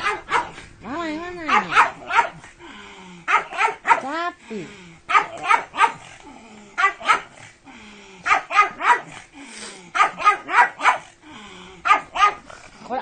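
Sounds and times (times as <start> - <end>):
dog barking: 0.0 - 0.6, 1.4 - 2.4, 3.3 - 4.1, 5.1 - 6.1, 6.8 - 7.4, 8.2 - 9.2, 9.9 - 11.1, 11.8 - 12.5.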